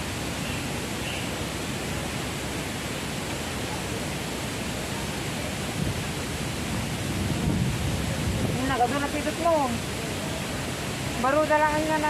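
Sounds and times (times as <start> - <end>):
strong wind blowing: 5.6 - 12.0.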